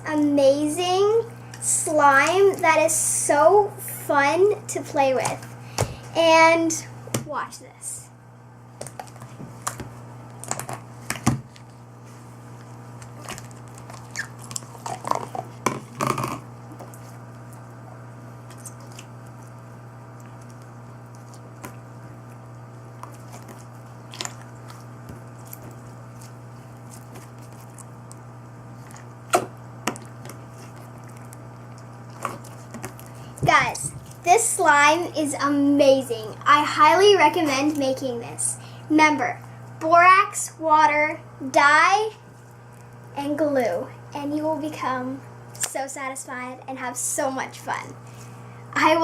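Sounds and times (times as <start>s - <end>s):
slime squelching and popping: 13.0s - 17.6s, 23.0s - 34.3s.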